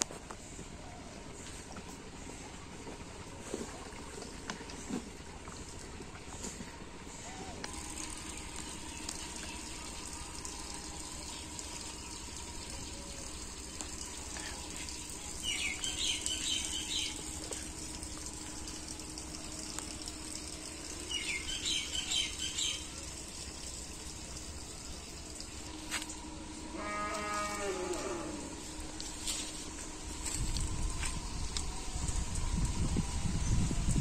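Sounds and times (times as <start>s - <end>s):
songbird singing: 7.0s - 18.6s, 20.9s - 23.1s.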